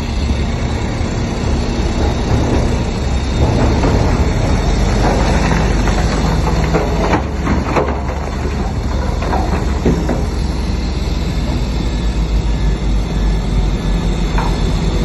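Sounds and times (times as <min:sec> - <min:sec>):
diesel engine rumbling: 0:00.0 - 0:15.0
steel tracks clanking and squealing: 0:00.0 - 0:15.0.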